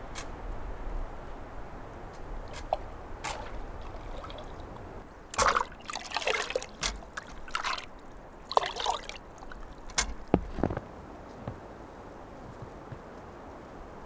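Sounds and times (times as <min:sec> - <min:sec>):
liquid trickling and splashing: 0:01.8 - 0:10.8.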